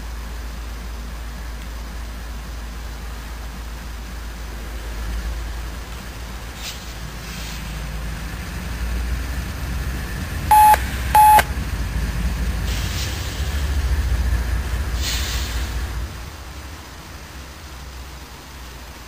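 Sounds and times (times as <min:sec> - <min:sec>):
diesel freight train rumble: 0:00.0 - 0:19.0
loud electronic beeps: 0:10.5 - 0:11.5.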